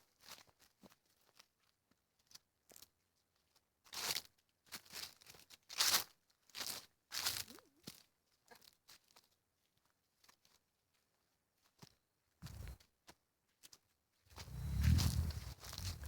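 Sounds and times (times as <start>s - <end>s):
footsteps crunching on woodland floor: 12.4s - 12.8s, 14.4s - 16.0s.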